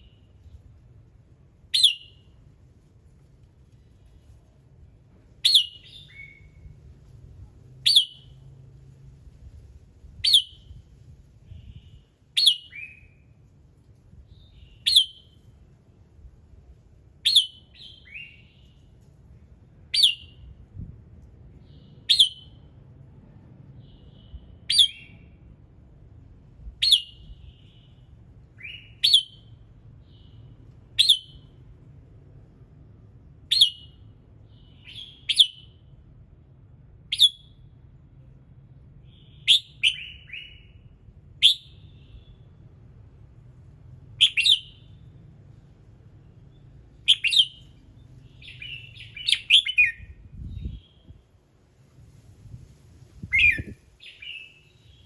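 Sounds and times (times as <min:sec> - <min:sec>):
bird calling sharp notes: 0:01.7 - 0:02.3, 0:05.4 - 0:06.5, 0:07.9 - 0:08.4, 0:31.0 - 0:31.5, 0:44.2 - 0:44.9, 0:47.1 - 0:47.8, 0:53.2 - 0:54.8.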